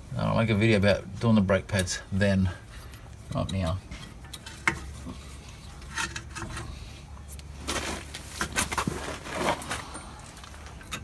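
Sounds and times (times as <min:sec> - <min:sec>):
scraping and rustling: 0:03.9 - 0:11.0.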